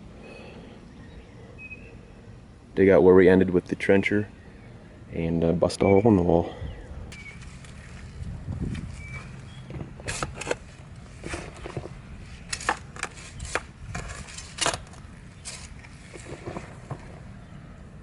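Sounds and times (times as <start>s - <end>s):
spade digging into soil: 8.6s - 17.2s.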